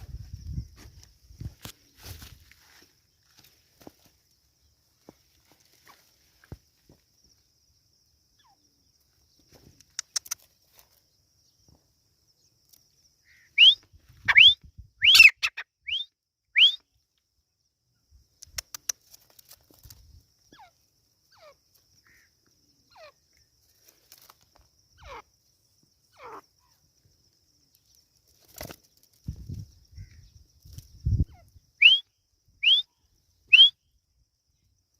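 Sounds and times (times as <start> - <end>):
francolin calling: 7.4 - 11.7, 12.4 - 17.0, 18.1 - 28.1, 28.9 - 34.8.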